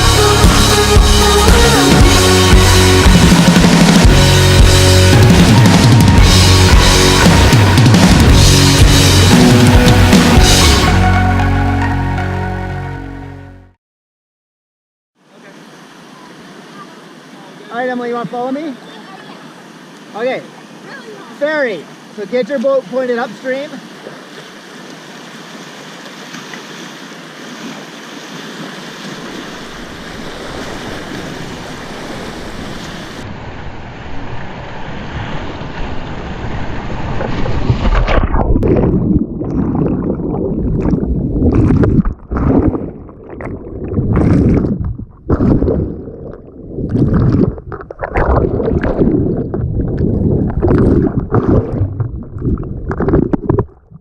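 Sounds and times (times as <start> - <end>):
river water rushing: 0.0 - 10.6, 15.2 - 37.6
wind buffeting microphone: 30.3 - 53.8.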